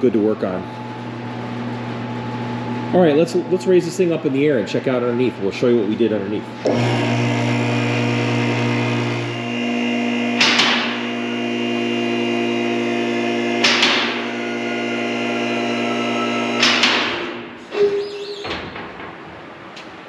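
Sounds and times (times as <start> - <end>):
car lift pump motor humming: 6.4 - 17.7.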